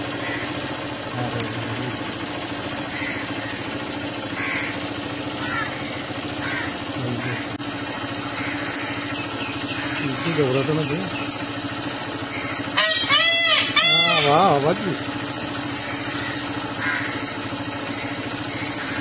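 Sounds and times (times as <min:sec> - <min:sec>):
bird calls: 0:00.0 - 0:02.0, 0:02.6 - 0:14.9, 0:15.5 - 0:19.0.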